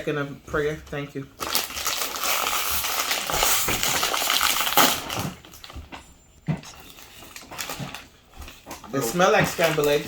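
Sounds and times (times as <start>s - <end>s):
plastic chip bag crinkling: 1.4s - 6.0s, 6.7s - 10.0s.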